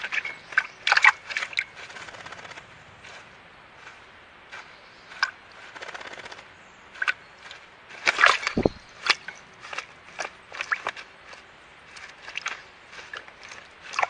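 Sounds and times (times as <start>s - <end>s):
bird splashing in water: 4.5s - 14.0s
low thud: 8.6s - 8.9s.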